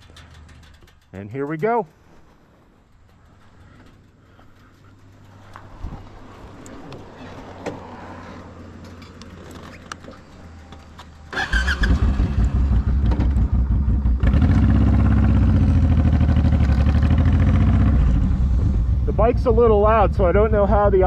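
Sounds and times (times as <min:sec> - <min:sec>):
motorcycle engine starting: 0:00.0 - 0:01.3, 0:02.7 - 0:21.0
motorcycle engine running loud: 0:11.8 - 0:21.0.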